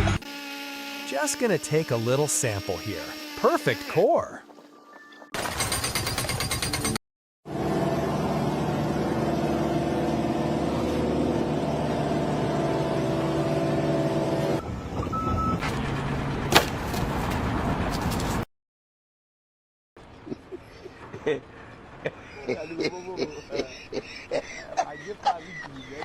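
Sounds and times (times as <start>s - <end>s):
engine running: 7.5s - 18.4s.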